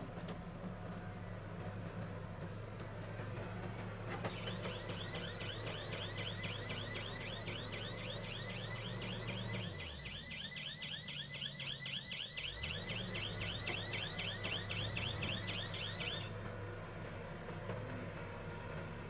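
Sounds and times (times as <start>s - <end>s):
low machine engine hum: 0.0s - 11.5s, 12.4s - 19.0s
electronic warbling alarm: 4.4s - 16.3s.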